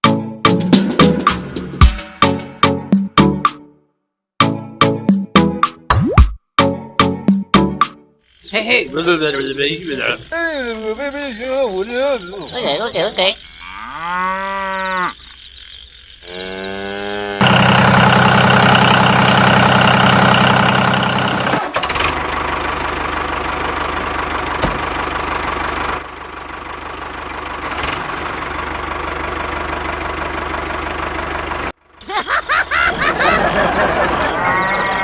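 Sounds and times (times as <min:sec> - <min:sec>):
small tractor engine running: 0:08.6 - 0:12.8, 0:17.4 - 0:32.0.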